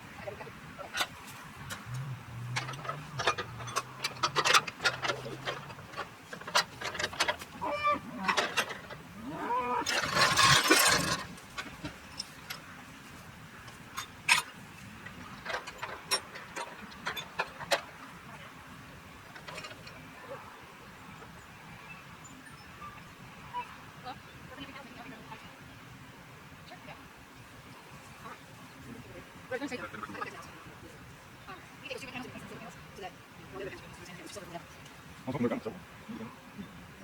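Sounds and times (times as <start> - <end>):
cow calling: 7.6 - 8.6, 9.2 - 10.6.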